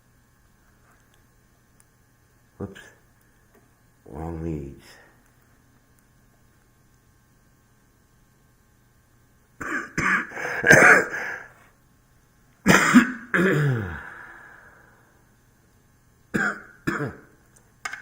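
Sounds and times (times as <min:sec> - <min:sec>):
man coughing hard: 0:09.6 - 0:11.5, 0:12.6 - 0:14.0, 0:16.3 - 0:17.3.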